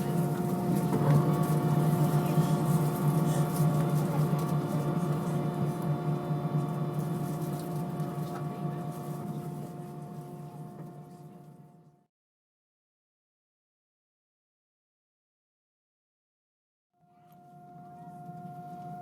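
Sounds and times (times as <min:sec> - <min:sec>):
airliner cabin hum: 0:17.4 - 0:19.0.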